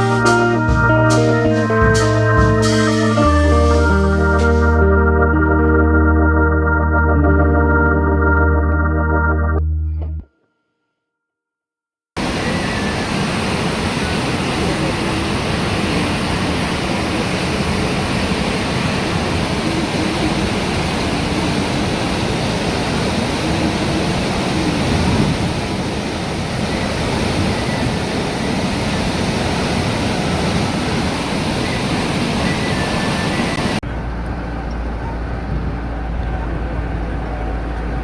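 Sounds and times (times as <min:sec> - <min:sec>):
rushing falling water: 0:12.2 - 0:33.8.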